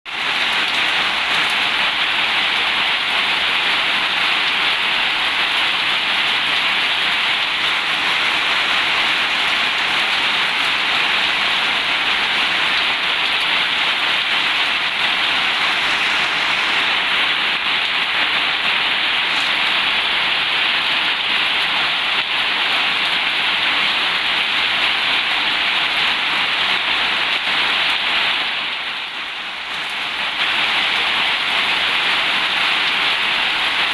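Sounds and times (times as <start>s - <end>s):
heavy rain hissing: 0.1s - 33.9s.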